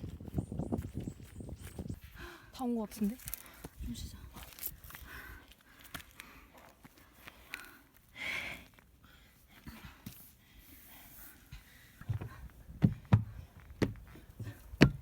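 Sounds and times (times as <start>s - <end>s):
person breathing hard: 4.9s - 13.5s
sharp knocks and thumps: 12.0s - 15.0s.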